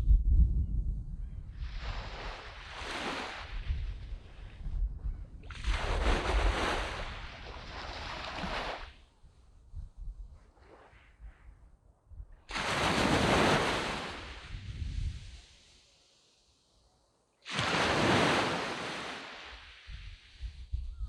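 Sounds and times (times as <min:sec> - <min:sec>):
wind buffeting microphone: 0:00.0 - 0:08.0, 0:09.3 - 0:15.4, 0:19.8 - 0:21.0
sea waves breaking on a beach: 0:01.6 - 0:04.6, 0:05.4 - 0:09.0, 0:12.5 - 0:16.5, 0:17.4 - 0:20.6.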